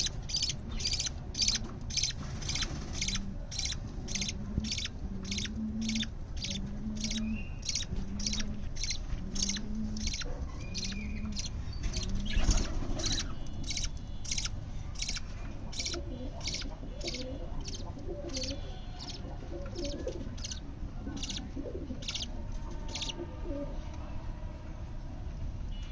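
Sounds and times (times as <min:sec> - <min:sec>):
chicks raspy begging calls: 0:00.0 - 0:22.3, 0:22.9 - 0:23.2.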